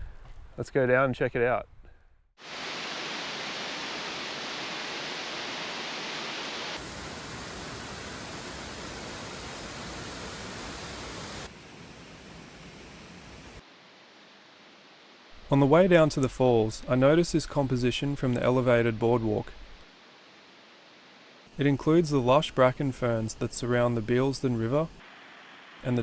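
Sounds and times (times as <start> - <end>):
waterfall rushing: 2.4 - 11.5.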